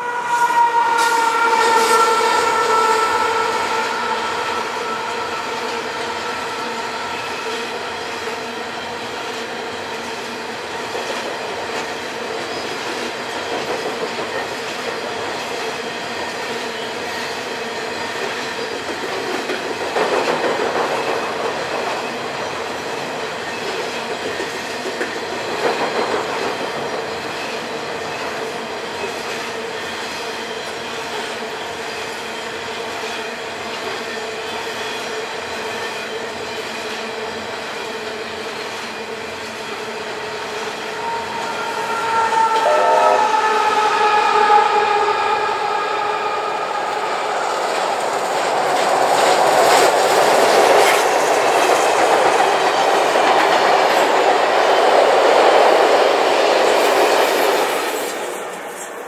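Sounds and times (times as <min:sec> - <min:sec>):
train horn: 0:00.0 - 0:08.3, 0:40.6 - 0:48.2
train wheels clattering on bridge: 0:00.9 - 0:42.6.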